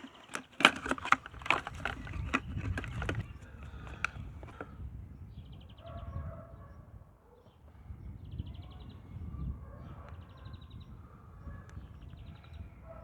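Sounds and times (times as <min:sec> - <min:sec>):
oil filter packaging handled: 0:00.0 - 0:04.7.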